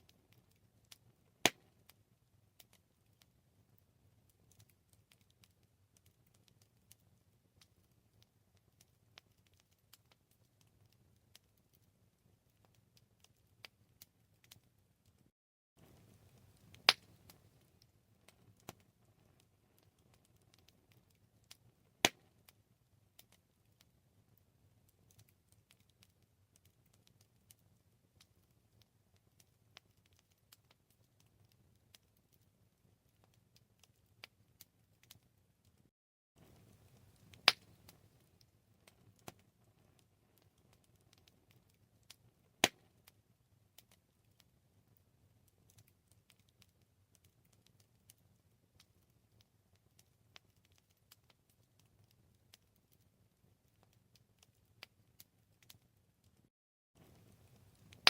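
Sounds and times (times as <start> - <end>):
campfire crackling: 0.0 - 56.4, 57.0 - 58.0
low rumble of flames: 15.8 - 22.0, 36.4 - 42.6, 57.0 - 58.0.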